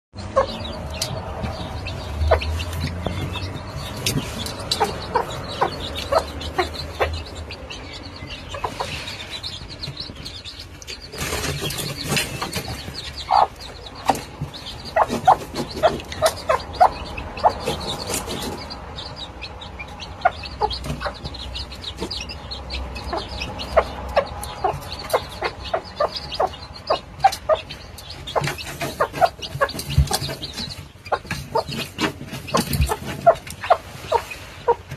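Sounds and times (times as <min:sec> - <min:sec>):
chicks calling: 0:00.2 - 0:34.9
hen clucking: 0:00.2 - 0:34.9.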